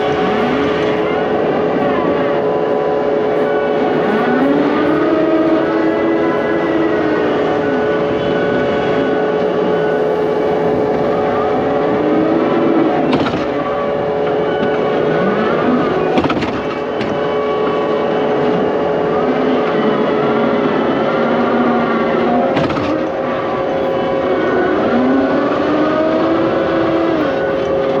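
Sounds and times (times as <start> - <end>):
excavator diesel engine running: 0.0 - 28.0
sharp metallic clanks: 12.9 - 19.0.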